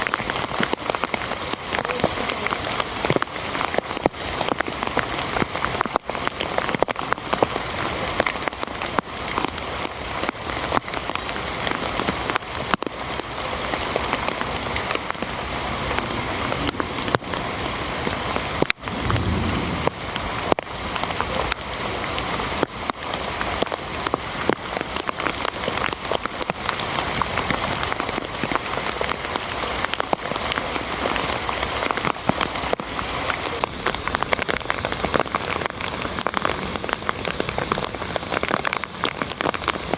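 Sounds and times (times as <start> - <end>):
heavy rain falling: 0.0 - 39.9
low thud: 18.8 - 20.5.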